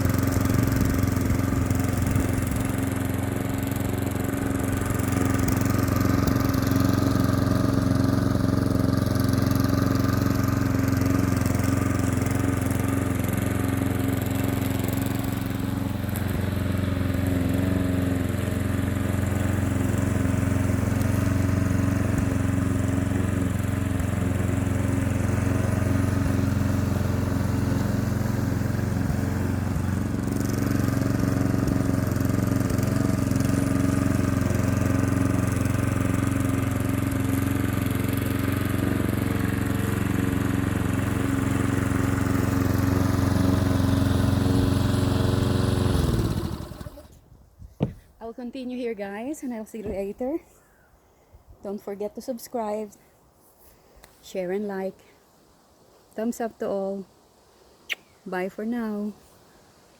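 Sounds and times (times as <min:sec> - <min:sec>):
lawn mower engine running: 0:00.0 - 0:47.2.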